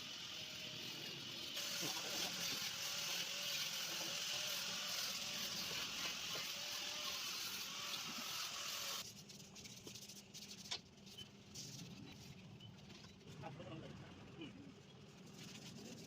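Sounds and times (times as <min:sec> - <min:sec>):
spray hissing: 0:00.0 - 0:09.0.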